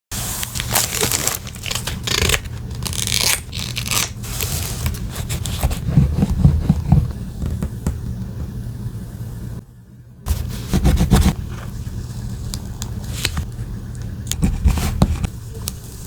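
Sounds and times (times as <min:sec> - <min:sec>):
paper tearing and rustling: 0:00.1 - 0:06.4.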